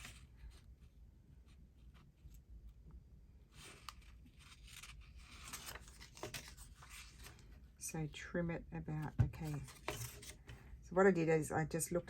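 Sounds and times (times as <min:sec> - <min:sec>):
faint paper rustling: 0:00.0 - 0:07.8, 0:09.0 - 0:10.8.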